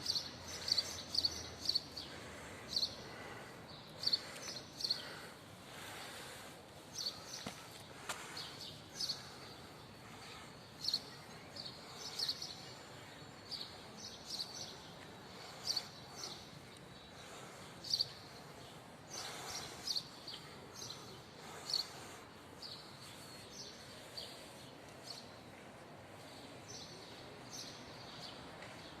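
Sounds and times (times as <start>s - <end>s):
birds chirping: 0.0s - 29.0s
outdoor background hiss: 0.0s - 29.0s.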